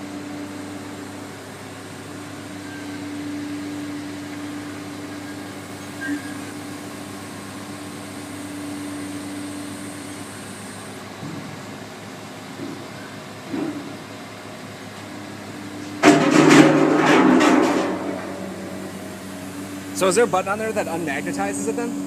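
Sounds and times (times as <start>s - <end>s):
machine hum: 16.0s - 22.0s.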